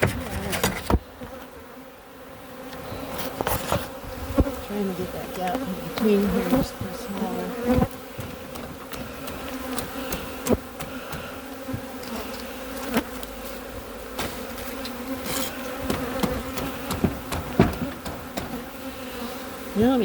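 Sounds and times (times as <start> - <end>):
bees buzzing: 0.0 - 20.0
sharp clicks and knocks: 15.8 - 18.6.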